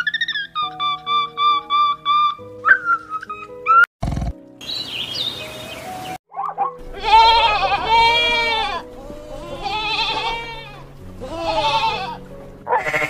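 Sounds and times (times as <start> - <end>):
goat bleating: 6.9 - 13.0.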